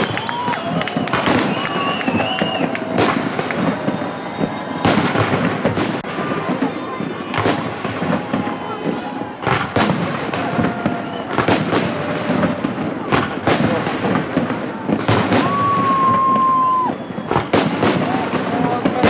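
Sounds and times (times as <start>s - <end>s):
high whistle: 0.0s - 6.0s, 8.0s - 9.6s, 10.7s - 11.6s, 15.4s - 17.8s
crowd chatter: 0.0s - 19.0s
fireworks bangs: 0.0s - 19.0s.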